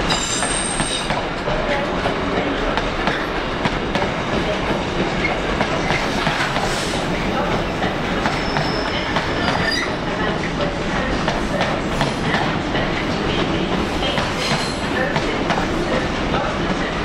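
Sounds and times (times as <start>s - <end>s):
train running on rails: 0.0s - 17.0s
wheel squeals: 8.3s - 10.0s.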